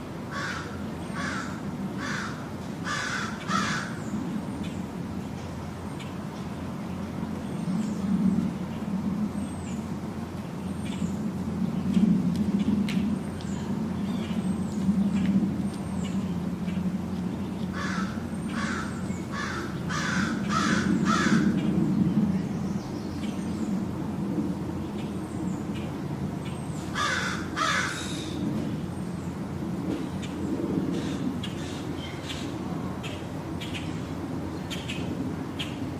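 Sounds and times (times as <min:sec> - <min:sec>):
steady low hum: 0:00.0 - 0:35.9
bird cawing harshly: 0:00.3 - 0:04.0, 0:17.7 - 0:21.6, 0:26.9 - 0:28.4.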